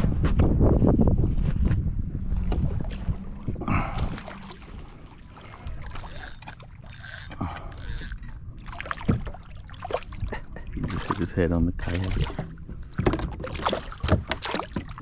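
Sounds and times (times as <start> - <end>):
wind rumble on microphone: 0.0 - 6.1
water splashing: 2.4 - 15.0.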